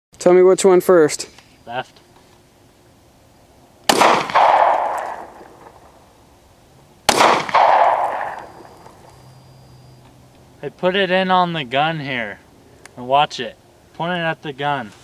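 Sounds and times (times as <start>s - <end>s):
gunshots: 3.9s - 6.0s, 7.1s - 9.0s.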